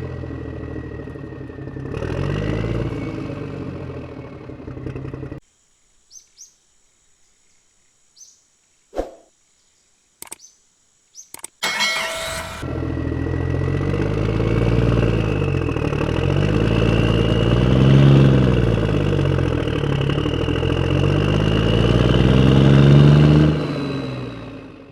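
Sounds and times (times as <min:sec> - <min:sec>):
engine crackle: 0:00.0 - 0:05.4, 0:11.4 - 0:24.9
engine droning: 0:00.0 - 0:05.4, 0:11.6 - 0:24.9.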